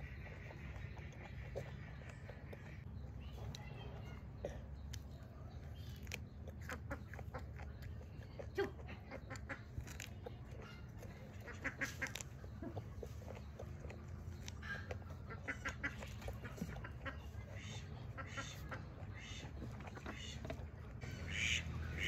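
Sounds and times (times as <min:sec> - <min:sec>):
crunching raw vegetable: 0:00.0 - 0:22.0
duck-like poultry calling: 0:21.2 - 0:22.0.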